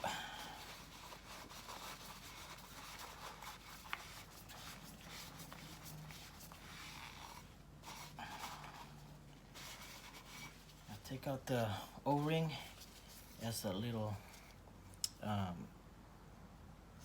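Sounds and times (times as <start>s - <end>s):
rag rubbing: 0.0s - 11.3s.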